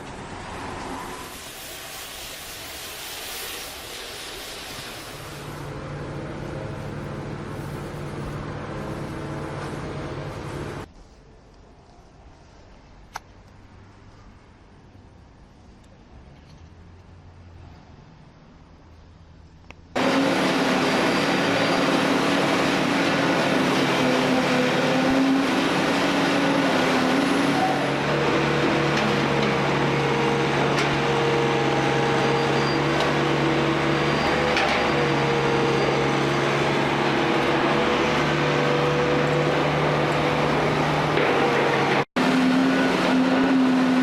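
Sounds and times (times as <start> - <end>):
engine-driven machine humming: 20.0 - 44.0.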